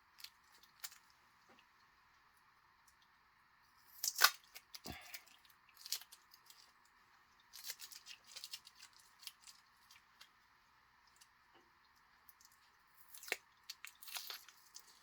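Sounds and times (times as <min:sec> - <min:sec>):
plastic and paper packaging crackling: 0:04.1 - 0:10.4, 0:12.4 - 0:15.0.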